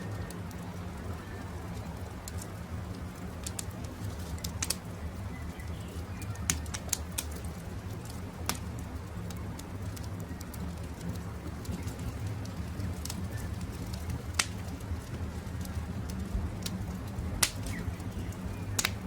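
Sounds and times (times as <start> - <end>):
campfire crackling and popping: 0.0 - 19.0
birds calling: 17.5 - 19.0.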